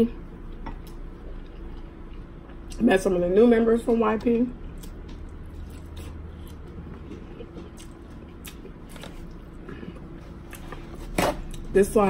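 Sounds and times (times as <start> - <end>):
low steady hum: 0.0 - 12.0
person chewing food: 0.4 - 2.8, 4.6 - 11.7.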